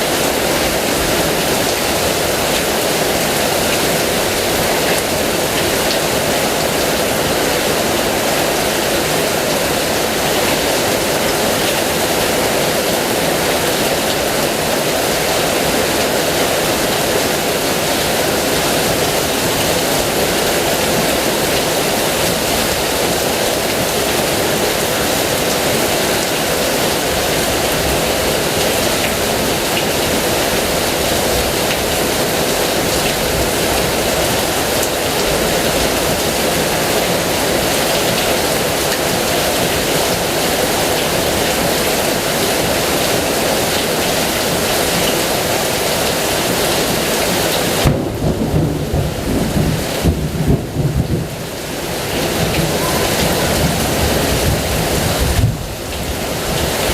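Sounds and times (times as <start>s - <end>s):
heavy rain hissing: 0.0s - 56.9s
rumble of thunder: 47.8s - 51.5s, 52.4s - 55.7s.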